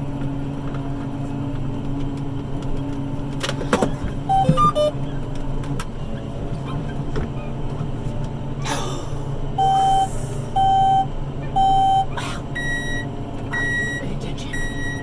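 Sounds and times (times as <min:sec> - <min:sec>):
diesel engine hum: 0:00.0 - 0:15.0
electronic alert beeps: 0:04.3 - 0:05.0, 0:09.6 - 0:15.0.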